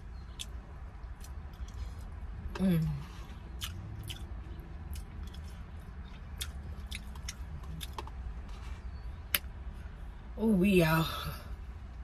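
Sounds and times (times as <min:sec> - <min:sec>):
person chewing noodles: 0:00.2 - 0:02.5, 0:03.2 - 0:09.4.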